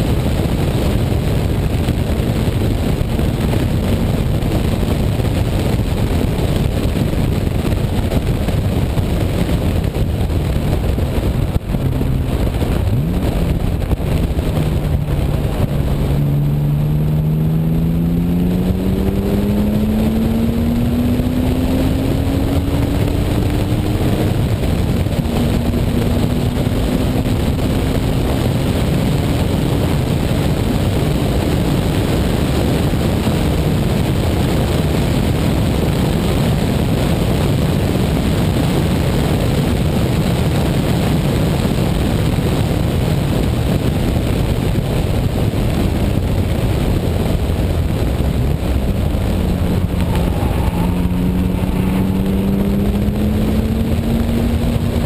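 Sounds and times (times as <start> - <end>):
car engine accelerating: 0.0 - 39.6, 42.5 - 55.0
heavy wind rush: 0.0 - 55.0.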